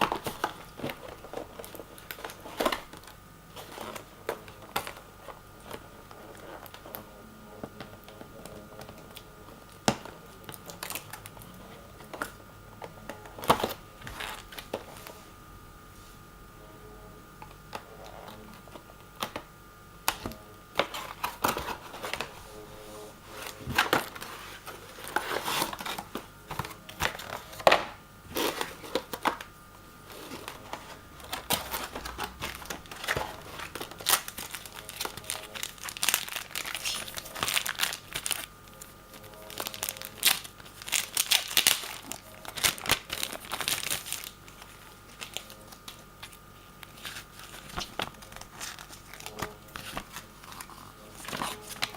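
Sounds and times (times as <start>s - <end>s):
packaging crinkling: 8.0s - 12.4s, 23.3s - 51.9s
wrapping tearing: 30.1s - 51.9s.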